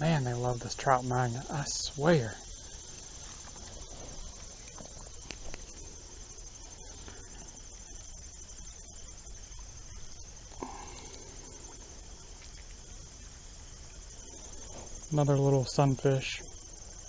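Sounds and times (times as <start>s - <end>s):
insect chorus trilling: 0.0s - 17.0s.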